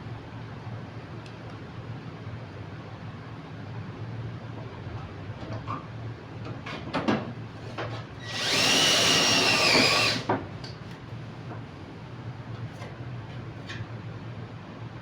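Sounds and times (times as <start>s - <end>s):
power drill whining: 8.2s - 10.3s.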